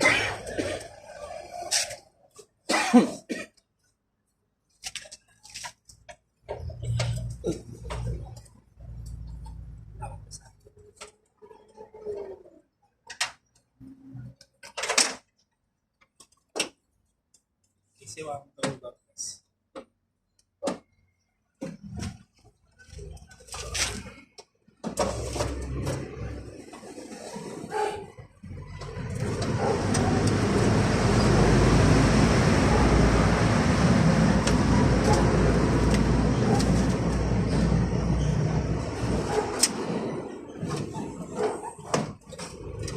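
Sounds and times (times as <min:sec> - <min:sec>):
motor vehicle running: 0:28.4 - 0:41.5.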